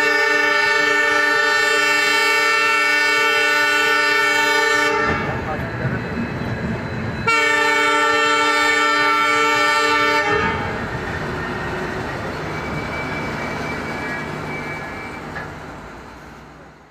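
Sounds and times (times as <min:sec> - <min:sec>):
train horn chord: 0:00.0 - 0:05.4, 0:07.2 - 0:10.8
passenger coaches rumbling past: 0:00.0 - 0:16.9.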